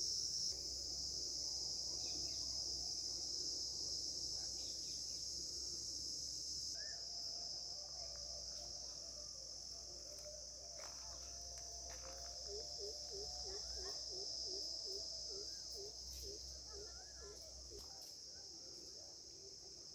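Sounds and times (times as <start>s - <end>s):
high-pitched insect drone: 10.7s - 18.3s.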